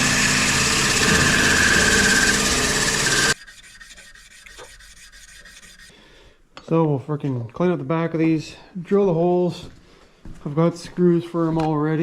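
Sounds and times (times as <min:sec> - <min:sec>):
abrasive rubbing on wood: 0:01.0 - 0:05.9
quick scraping strokes: 0:03.3 - 0:05.9.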